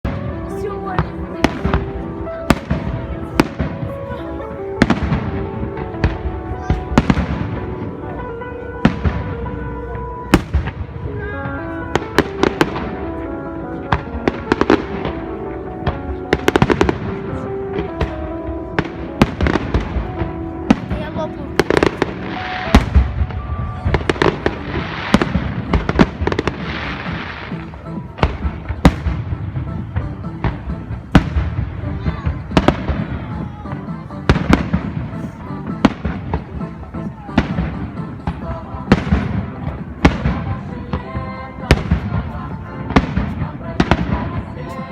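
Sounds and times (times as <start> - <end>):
fireworks bangs and crackle: 0.0 - 8.2, 8.8 - 13.2, 13.8 - 44.9
music playing: 0.0 - 44.9
fireworks crackling hiss: 21.6 - 36.7.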